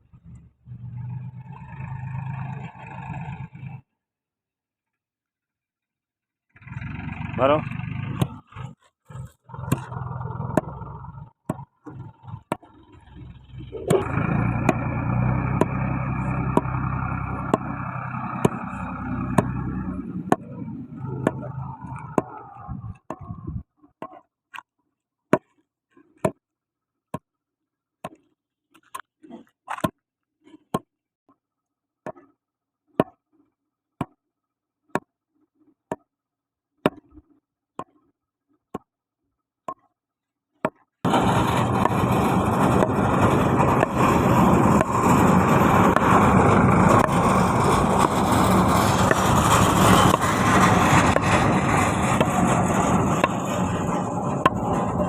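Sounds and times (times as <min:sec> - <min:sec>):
engine running: 0:06.6 - 0:23.6, 0:41.0 - 0:55.0.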